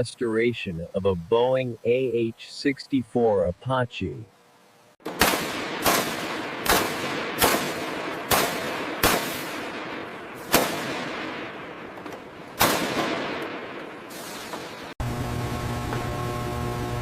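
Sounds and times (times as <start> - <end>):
sharp echoing bangs: 5.0 - 15.0.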